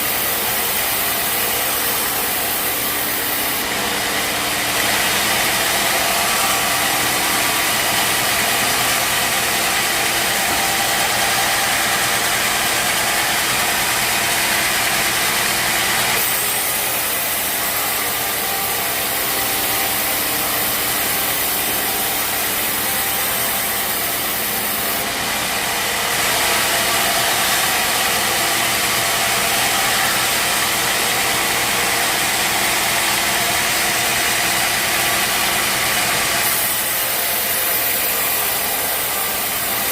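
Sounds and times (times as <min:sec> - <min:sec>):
saw blade hissing through wood: 0:00.0 - 0:13.0, 0:16.1 - 0:25.0, 0:36.4 - 0:39.9
bandsaw sawmill running: 0:00.0 - 0:39.9.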